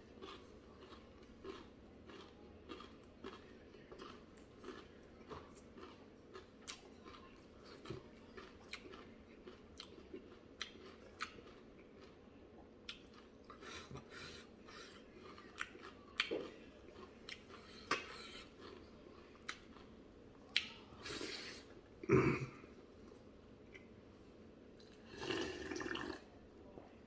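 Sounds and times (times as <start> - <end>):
person chewing food: 0.0 - 21.8.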